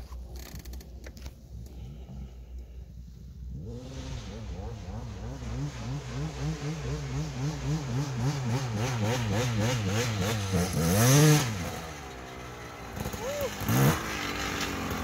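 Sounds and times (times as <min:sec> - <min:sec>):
dirt bike engine revving: 0:03.5 - 0:15.0.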